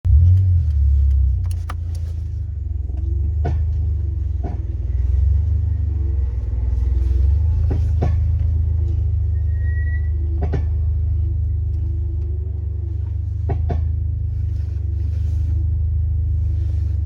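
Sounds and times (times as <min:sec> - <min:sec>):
car road rumble: 0:00.0 - 0:17.0
suspension knocks: 0:07.3 - 0:09.3.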